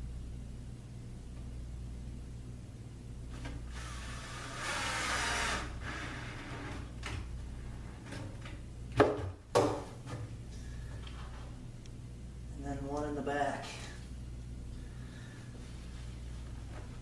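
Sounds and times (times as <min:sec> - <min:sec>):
cordless drill driving a screw: 0:03.7 - 0:06.6.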